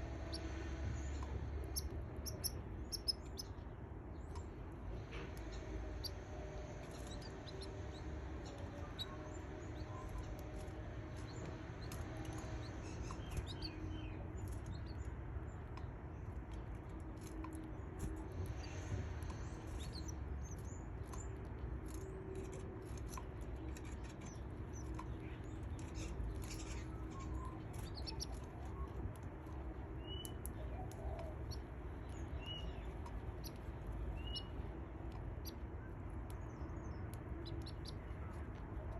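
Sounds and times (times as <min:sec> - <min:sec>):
steady low hum: 0:00.0 - 0:38.9
rustles and scratches in nest: 0:21.9 - 0:29.8.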